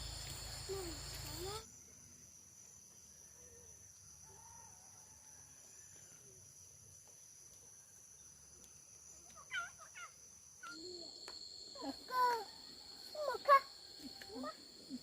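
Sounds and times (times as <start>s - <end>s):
high-pitched insect drone: 0.0s - 4.1s.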